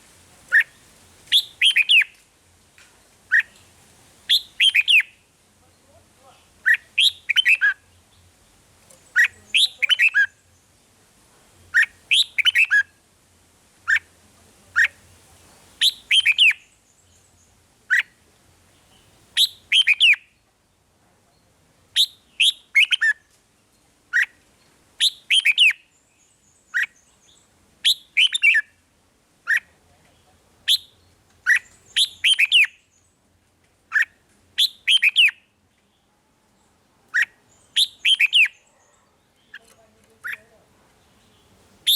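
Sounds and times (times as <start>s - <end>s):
bird singing whistled phrases: 0.5s - 2.2s, 4.3s - 5.2s, 6.6s - 7.8s, 9.2s - 10.4s, 11.8s - 12.9s, 15.8s - 16.7s, 19.4s - 20.3s, 22.0s - 23.2s, 25.0s - 25.9s, 27.8s - 28.7s, 30.7s - 32.8s, 33.9s - 35.4s, 37.2s - 38.6s.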